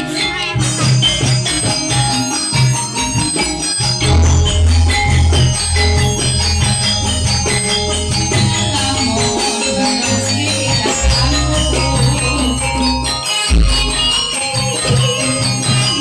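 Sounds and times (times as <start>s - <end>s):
jingling percussion: 0.0s - 16.0s
live ensemble playing music: 0.0s - 16.0s
strong bass line: 4.0s - 9.6s, 10.2s - 14.2s.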